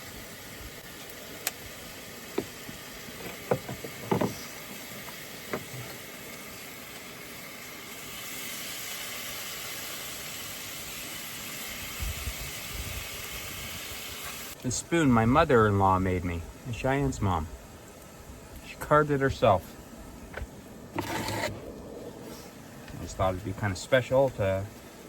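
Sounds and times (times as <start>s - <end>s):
food sizzling in a skillet: 3.8s - 14.6s.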